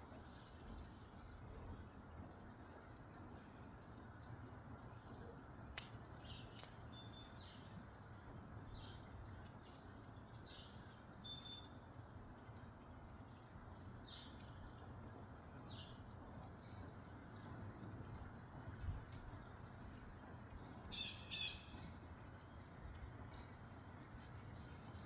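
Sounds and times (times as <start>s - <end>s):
bird chirping: 10.4s - 11.8s, 20.8s - 22.0s.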